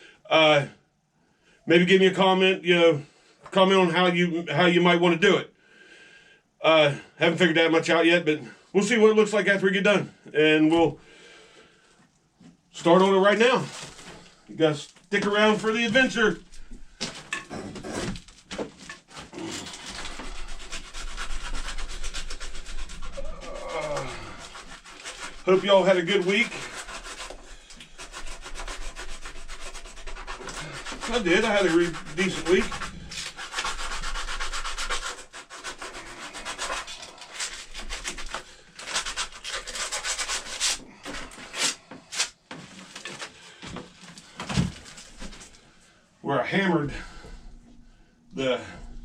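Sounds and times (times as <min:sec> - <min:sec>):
sandpaper rubbing on wood: 0:19.3 - 0:42.4.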